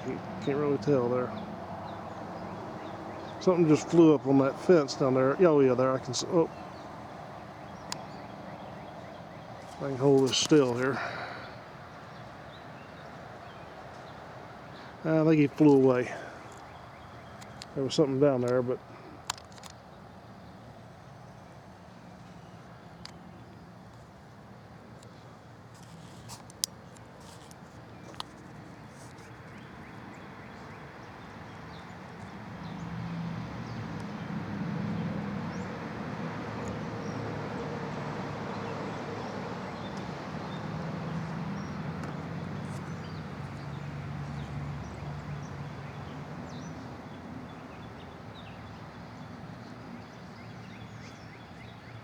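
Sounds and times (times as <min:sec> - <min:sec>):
passing vehicle engine: 0:00.0 - 0:16.4, 0:31.1 - 0:50.0.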